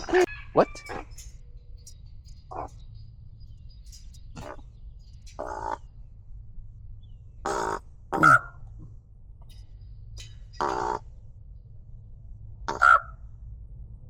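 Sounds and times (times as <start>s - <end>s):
raspy animal calls: 0.0s - 1.3s, 2.5s - 2.8s, 4.4s - 4.6s, 5.4s - 5.9s, 7.5s - 8.7s, 10.6s - 11.1s, 12.7s - 13.2s.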